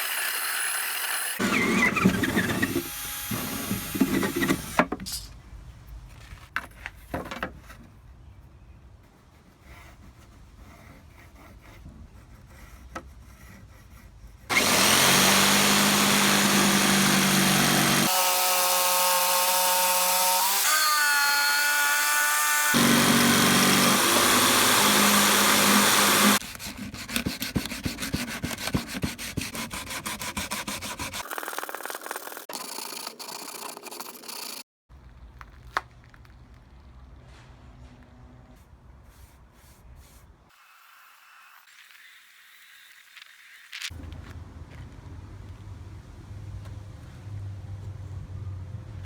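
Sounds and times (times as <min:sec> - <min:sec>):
electric sander running: 0:14.5 - 0:19.0, 0:22.7 - 0:26.4.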